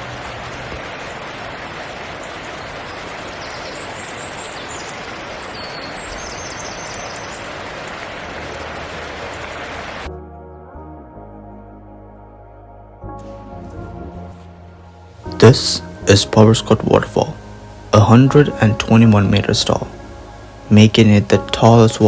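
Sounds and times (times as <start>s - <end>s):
falling water rushing: 0.0s - 10.1s, 15.2s - 22.0s
faint bird chirps: 2.3s - 7.6s.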